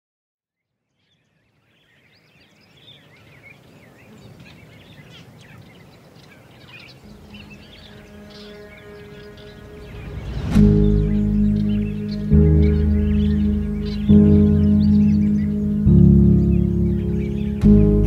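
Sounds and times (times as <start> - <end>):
birds chirping and singing: 1.0 - 18.0
low steady tone: 7.1 - 18.0.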